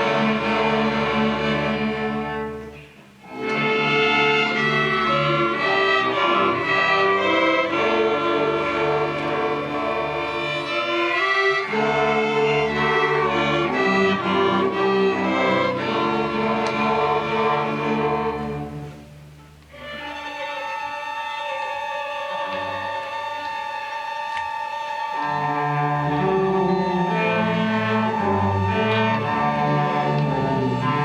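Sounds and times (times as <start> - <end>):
string orchestra playing: 0.0 - 31.0.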